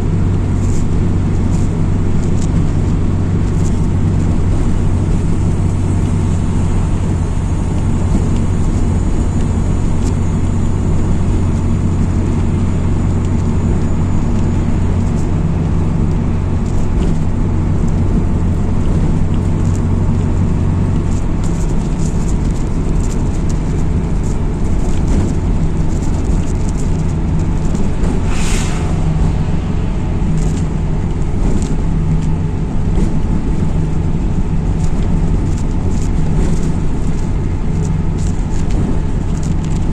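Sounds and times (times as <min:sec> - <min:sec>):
bus diesel engine running: 0:00.0 - 0:39.9
road noise: 0:00.0 - 0:39.9
light rattles and clicks: 0:00.2 - 0:06.4, 0:07.8 - 0:28.2, 0:29.2 - 0:39.9
short hiss: 0:28.0 - 0:30.8.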